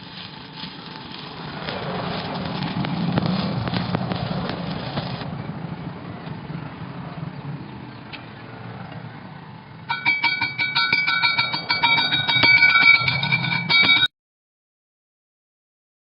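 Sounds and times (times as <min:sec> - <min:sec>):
metallic knocks with ringing steel: 0:09.9 - 0:14.1.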